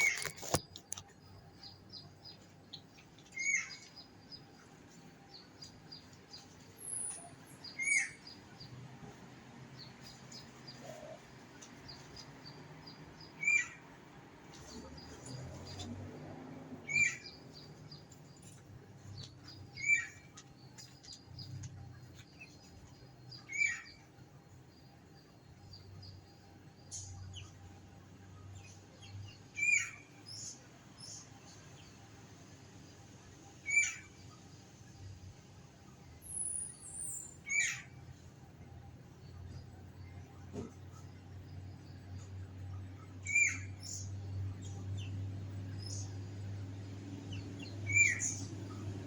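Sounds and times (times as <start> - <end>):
high chirping calls: 5.3 - 8.8, 16.8 - 24.2, 43.0 - 46.2, 47.2 - 49.0.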